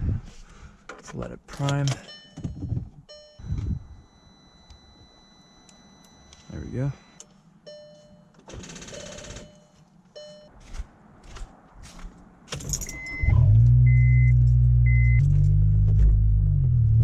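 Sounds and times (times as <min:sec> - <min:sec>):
dashboard warning chimes: 0:01.6 - 0:10.6, 0:12.7 - 0:15.2
short beeps: 0:02.0 - 0:08.4, 0:09.0 - 0:10.5, 0:12.8 - 0:15.2.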